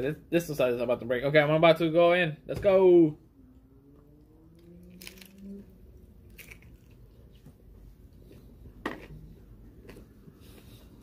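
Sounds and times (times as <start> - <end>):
person crunching crisp food: 4.8 - 5.6, 6.2 - 7.1.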